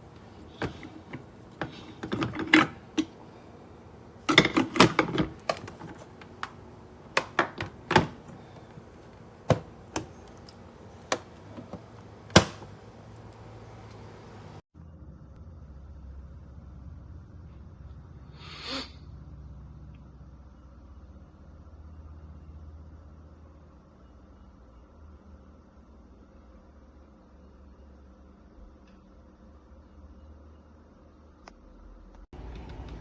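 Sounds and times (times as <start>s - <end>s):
hard objects clicking and knocking: 0.0s - 3.6s, 4.2s - 13.4s.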